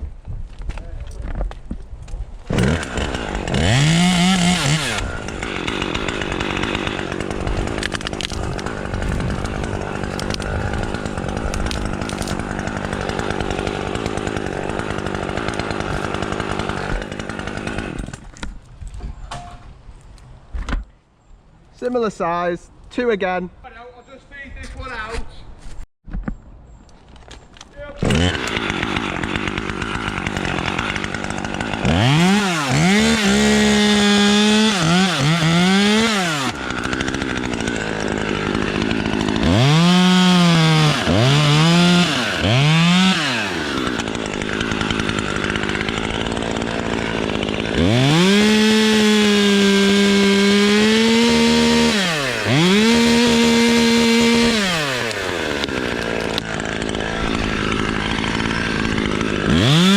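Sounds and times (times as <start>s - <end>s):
chainsaw revving and idling: 2.5s - 18.2s, 27.8s - 59.9s.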